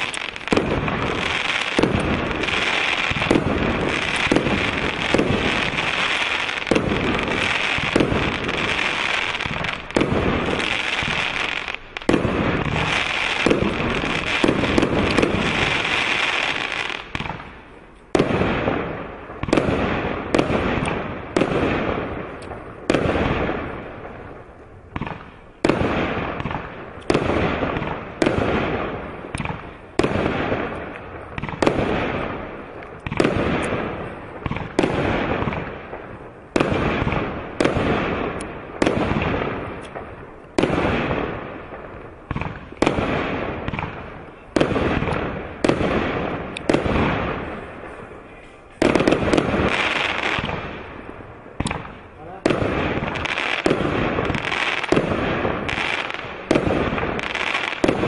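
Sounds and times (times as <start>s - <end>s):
firework cake bangs: 0.0s - 17.5s, 33.0s - 48.0s, 51.6s - 58.0s.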